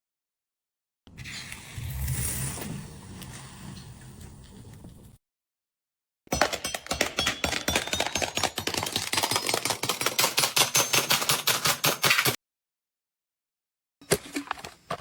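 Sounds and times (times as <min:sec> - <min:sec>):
rapid clatter of clicks: 0:06.4 - 0:12.4.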